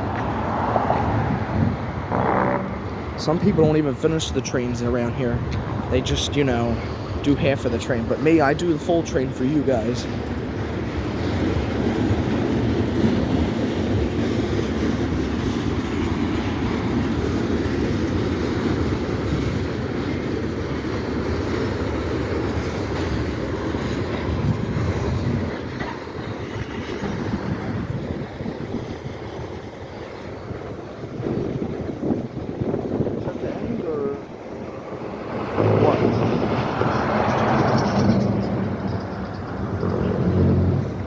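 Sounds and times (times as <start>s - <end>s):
freight train cars rolling past: 0.0s - 41.0s.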